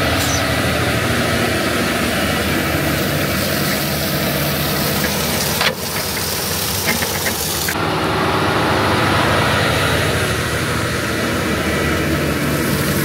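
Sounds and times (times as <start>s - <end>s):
diesel paving machinery running: 0.0s - 13.0s.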